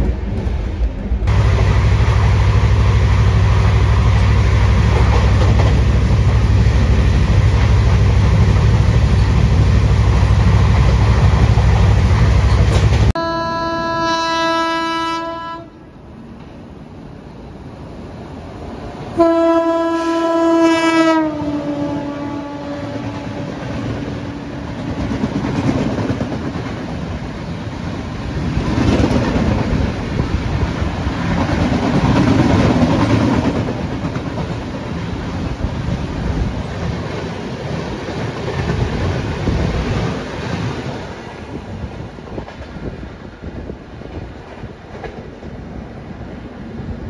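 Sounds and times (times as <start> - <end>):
train coaches rumbling by: 0.0 - 47.0
train horn blast: 13.1 - 15.8, 19.2 - 23.6.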